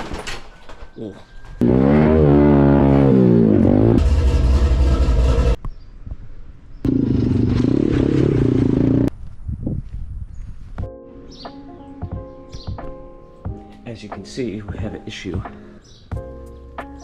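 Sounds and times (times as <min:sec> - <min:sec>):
dirt bike engine revving: 0:01.6 - 0:05.6, 0:06.9 - 0:09.1.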